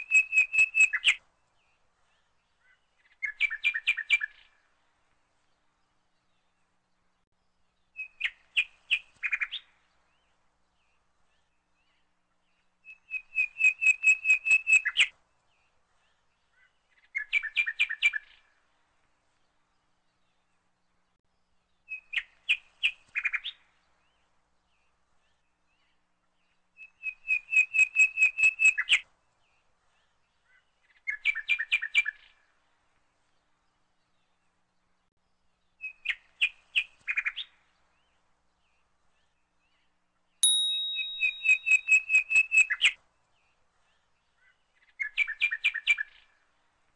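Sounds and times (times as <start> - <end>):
bird chirping: 40.4 - 42.9.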